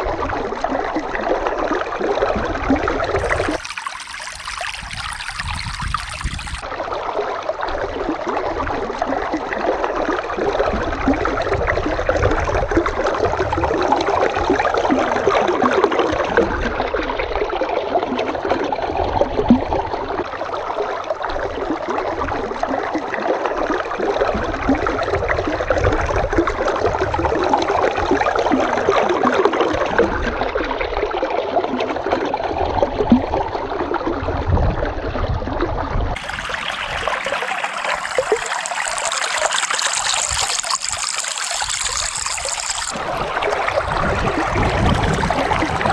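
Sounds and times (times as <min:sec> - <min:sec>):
babbling stream: 0:03.2 - 0:06.7, 0:36.2 - 0:45.9.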